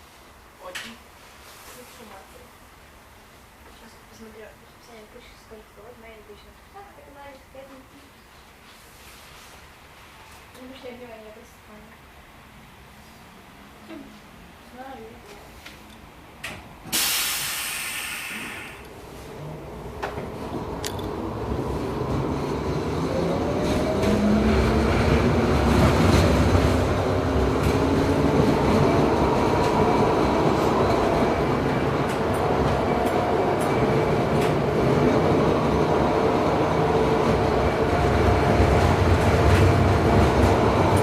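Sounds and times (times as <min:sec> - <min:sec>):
tram motors whining: 0:18.4 - 0:41.0.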